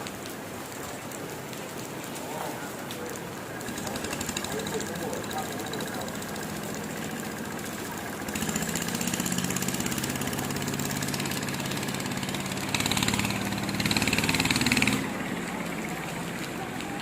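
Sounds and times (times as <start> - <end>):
engine throbbing: 3.5 - 17.0.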